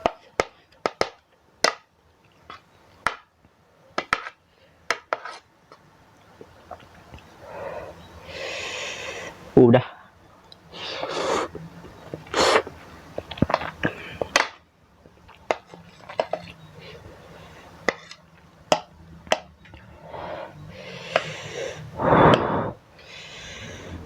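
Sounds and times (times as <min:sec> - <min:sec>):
noisy eating and breathing: 0:04.4 - 0:04.9, 0:06.4 - 0:14.4, 0:15.1 - 0:18.5, 0:19.6 - 0:24.0.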